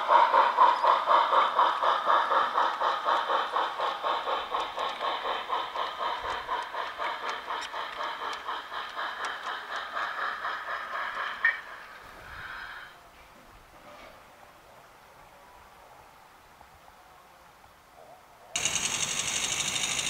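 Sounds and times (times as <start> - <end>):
wheels clicking over rail joints: 0.0 - 12.1, 18.6 - 20.0
model steam locomotive chuffing: 0.0 - 13.0, 18.6 - 20.0.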